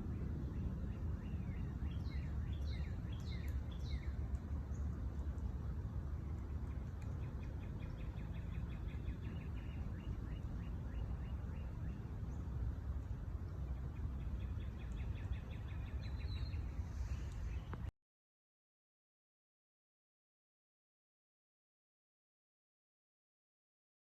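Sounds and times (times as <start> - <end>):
steady low rumble: 0.0 - 17.9
small bird chirping rapidly: 1.0 - 5.4, 6.1 - 12.6.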